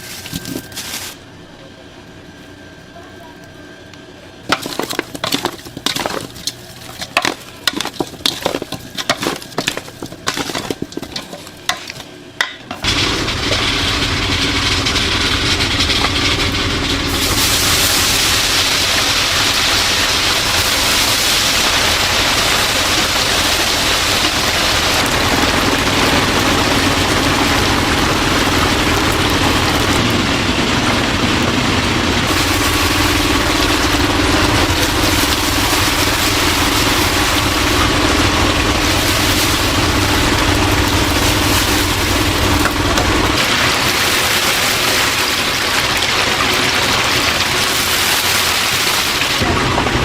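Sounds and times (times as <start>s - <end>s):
clatter of handling: 4.5s - 12.1s
chicken sizzling in hot oil: 17.1s - 30.0s.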